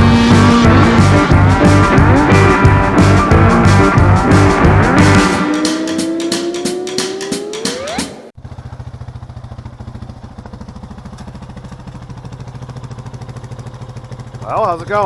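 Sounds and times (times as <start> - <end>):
background music: 0.0 - 8.4
engine idling with fast pulse: 0.0 - 15.0.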